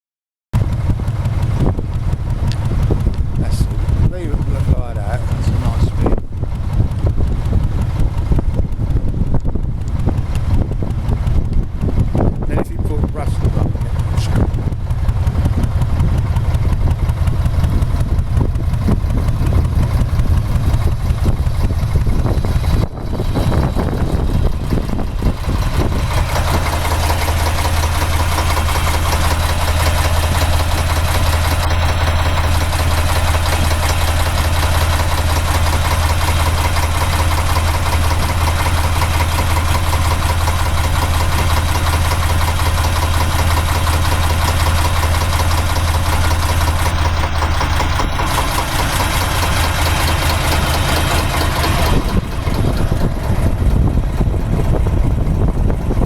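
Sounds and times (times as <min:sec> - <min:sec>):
diesel engine idling: 0:00.6 - 0:56.0.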